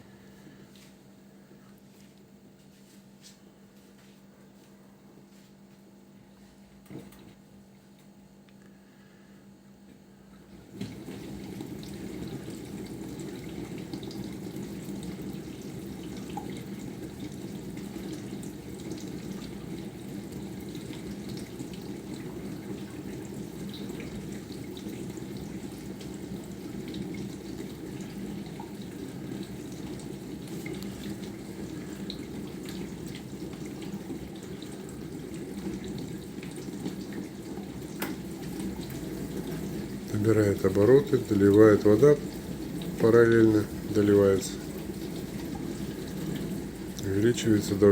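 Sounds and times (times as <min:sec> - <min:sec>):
dishwasher pump spraying water: 0:10.6 - 0:47.9.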